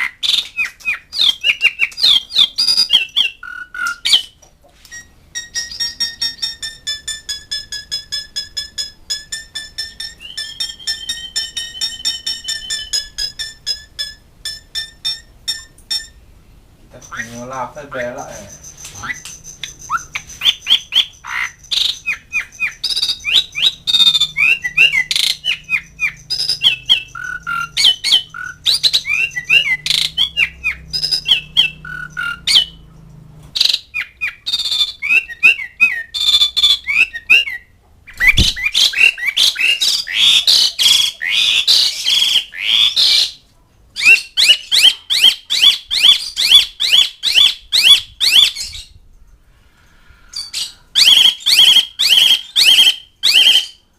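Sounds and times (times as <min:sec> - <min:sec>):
starling chattering squawks: 0:17.0 - 0:32.8.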